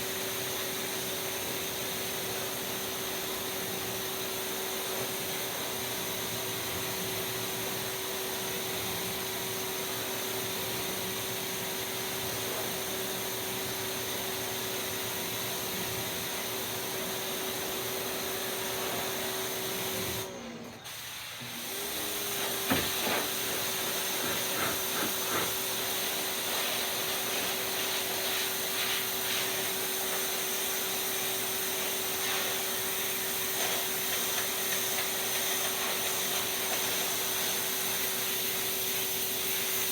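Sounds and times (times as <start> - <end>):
pressure washer running: 0.0 - 39.9
water spray hissing: 22.4 - 38.2.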